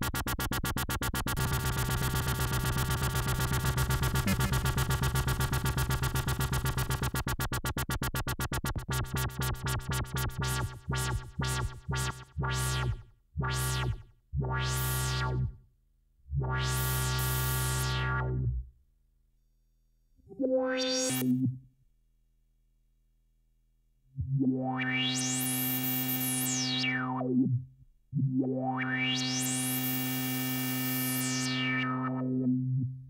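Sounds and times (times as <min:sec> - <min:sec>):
synthesizer low sequenced note: 0:01.3 - 0:07.8, 0:09.1 - 0:15.6, 0:16.3 - 0:18.7.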